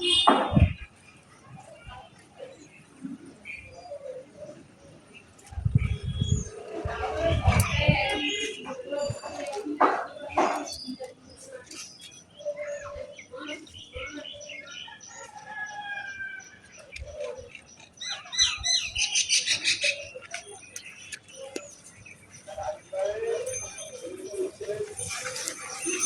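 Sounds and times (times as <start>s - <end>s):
birds calling and chirping: 0.0s - 26.0s
rapid high bird chatter: 0.0s - 26.0s.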